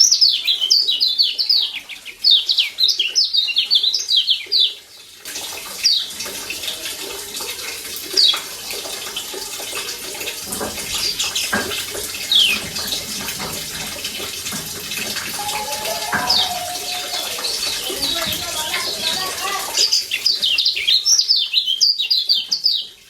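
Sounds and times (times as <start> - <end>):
running water hissing: 5.2 - 21.2.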